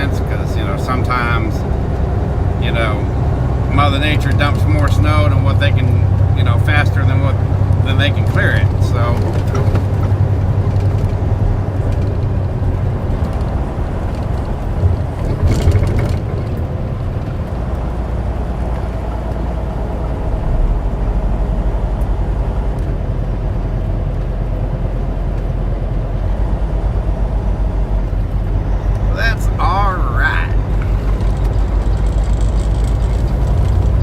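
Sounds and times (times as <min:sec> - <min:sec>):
truck engine and road noise: 0:00.0 - 0:34.0
brief clatter: 0:14.1 - 0:17.6.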